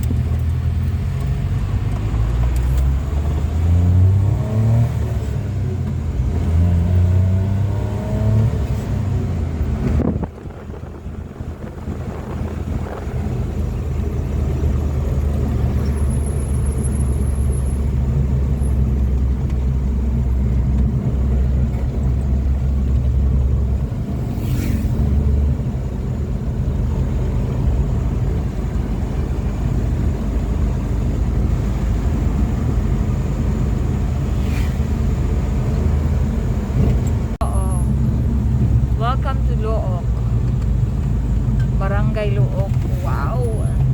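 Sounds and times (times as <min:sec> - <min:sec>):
vehicle engine and road noise: 0:00.0 - 0:43.9.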